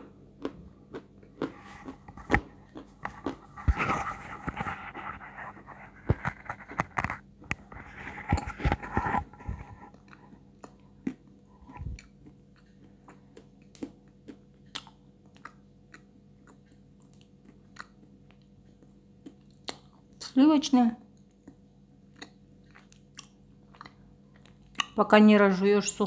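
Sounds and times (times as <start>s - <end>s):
chewing clicks: 9.9s - 20.0s, 21.2s - 25.0s.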